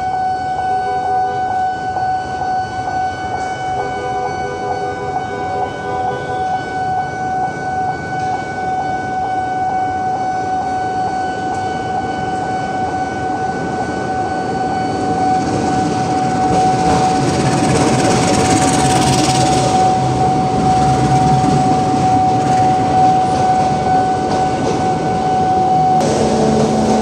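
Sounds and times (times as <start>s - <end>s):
train rushing rumble: 1.6s - 27.0s
steady high-pitched tone: 10.5s - 27.0s.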